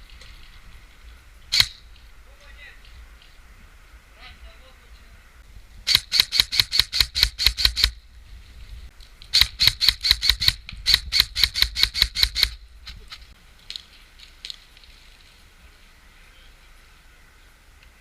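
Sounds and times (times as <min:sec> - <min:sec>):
airsoft gun rapid shots: 0:01.5 - 0:01.8, 0:05.9 - 0:08.0, 0:09.4 - 0:12.6.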